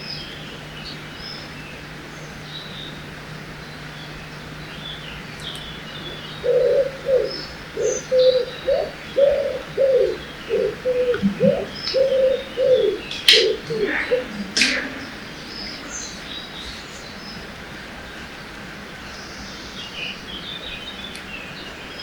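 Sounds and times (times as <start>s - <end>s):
running water hiss: 0.0s - 21.6s
faint songbird chirps: 0.0s - 22.0s
dove cooing: 5.2s - 17.4s.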